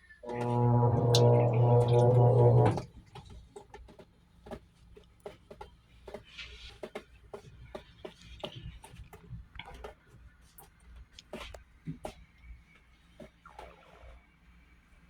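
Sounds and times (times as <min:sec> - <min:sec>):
faint low hum: 0:00.0 - 0:03.5
washer clicking and ticking: 0:00.3 - 0:02.9.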